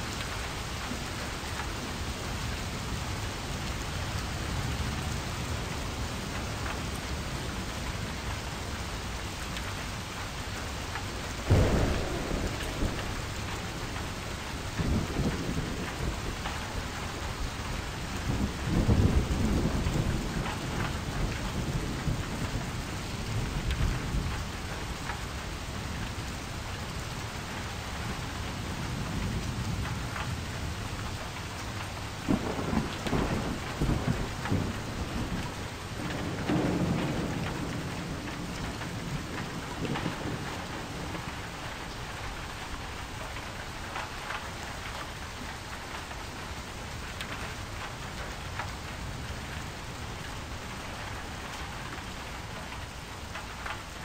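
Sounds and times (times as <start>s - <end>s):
steady rain: 0.0s - 54.0s
thunder rumbling: 11.4s - 26.0s, 32.0s - 44.9s.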